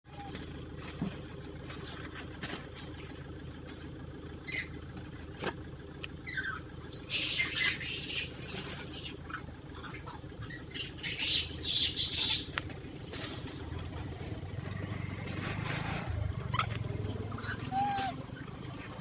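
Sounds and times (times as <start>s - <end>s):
monkeys squeaking: 0.1s - 0.5s, 4.4s - 4.8s, 6.2s - 12.6s, 15.8s - 18.9s
scuffle: 12.6s - 16.9s.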